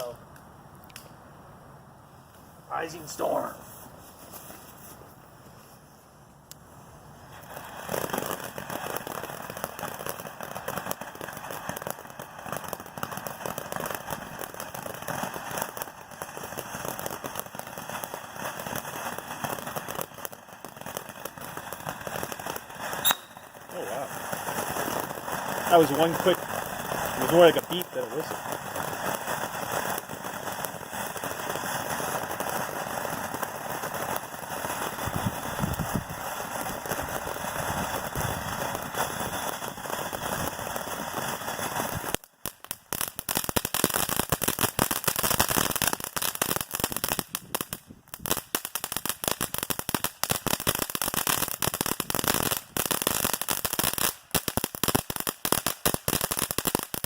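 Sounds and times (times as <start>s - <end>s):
firework fountain hissing: 1.0s - 57.0s
dense rapid firework crackling: 2.4s - 57.0s.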